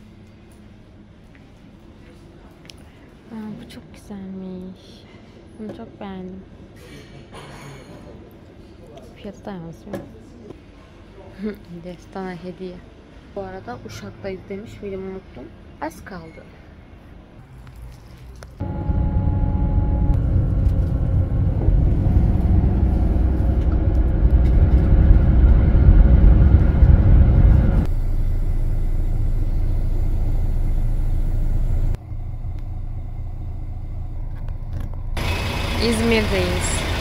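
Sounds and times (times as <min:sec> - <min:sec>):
bus engine and road rumble: 0:12.8 - 0:37.0
faint steady tones: 0:18.6 - 0:37.0.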